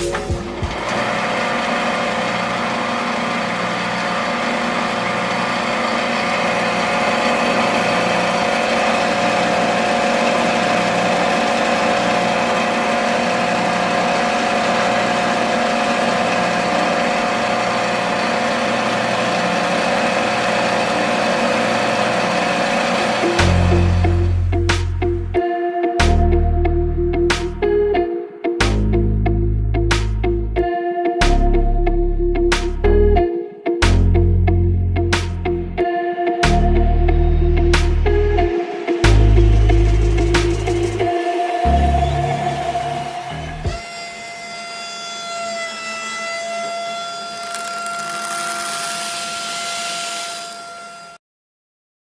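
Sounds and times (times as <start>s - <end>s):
small motor whining: 43.6s - 51.2s.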